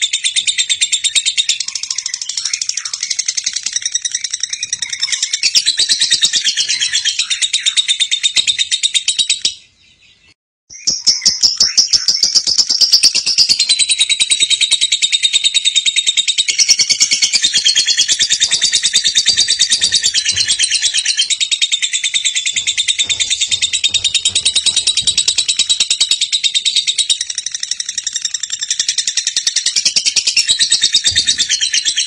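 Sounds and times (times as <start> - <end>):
bird chattering trill: 10.8 - 32.0.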